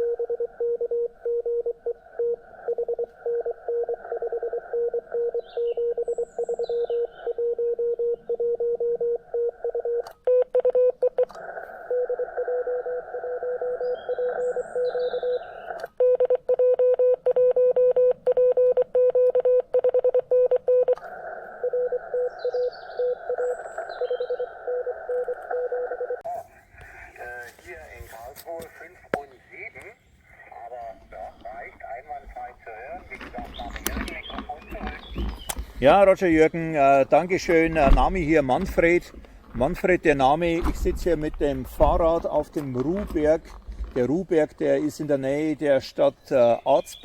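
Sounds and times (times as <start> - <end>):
morse code tone: 0.0 - 11.3, 11.9 - 15.4, 16.0 - 21.0, 21.6 - 26.3
receiver hiss: 20.9 - 42.8.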